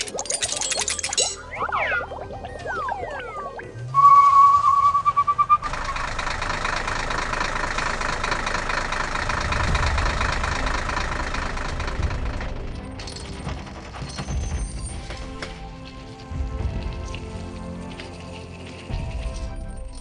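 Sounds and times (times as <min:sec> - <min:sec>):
steady high tone: 0:00.2 - 0:05.0
vehicle engine rumbling: 0:02.1 - 0:19.6.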